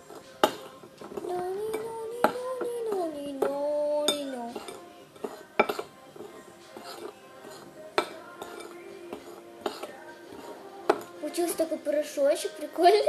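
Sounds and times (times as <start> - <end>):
spoon scraping against a dish: 0.0 - 11.7
person humming: 0.6 - 5.6.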